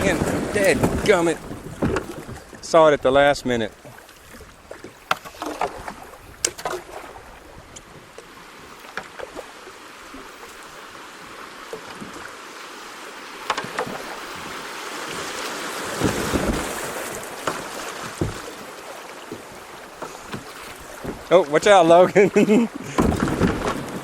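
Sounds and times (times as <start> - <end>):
paddle stroke knocks: 0.0 - 2.8, 13.4 - 21.8, 22.7 - 24.0
rushing water: 0.0 - 24.0
water splashing around hull: 0.0 - 24.0
low thump: 17.5 - 18.6, 22.9 - 24.0.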